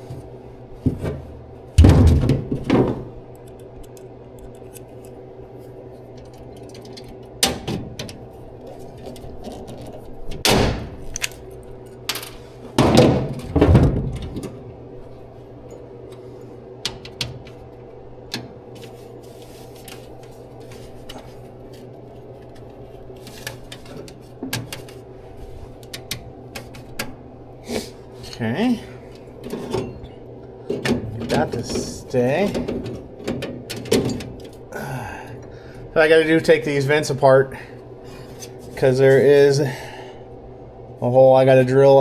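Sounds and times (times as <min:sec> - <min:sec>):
steady background hum: 0:00.0 - 0:42.0
parts knocking and clunking: 0:00.8 - 0:03.2, 0:12.1 - 0:14.7, 0:16.8 - 0:17.6, 0:29.4 - 0:34.6.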